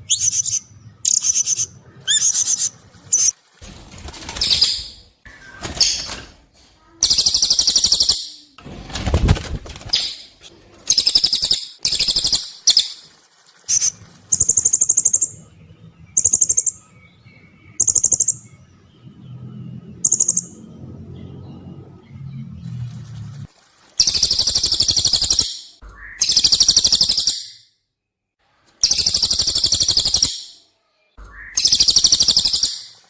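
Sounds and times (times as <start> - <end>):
shrill pulsed bird trills: 24.0 - 27.8, 28.8 - 33.0.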